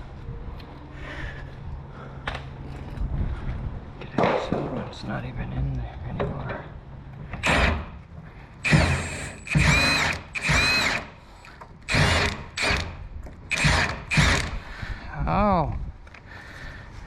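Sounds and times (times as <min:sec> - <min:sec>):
power tool motor whining: 0:08.6 - 0:11.2, 0:11.9 - 0:14.5.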